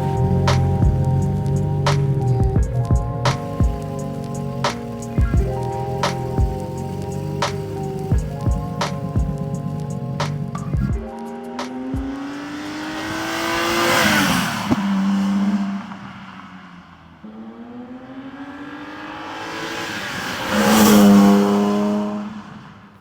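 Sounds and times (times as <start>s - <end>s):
car engine accelerating past: 0.0s - 10.8s, 11.8s - 23.0s
music: 0.0s - 12.8s.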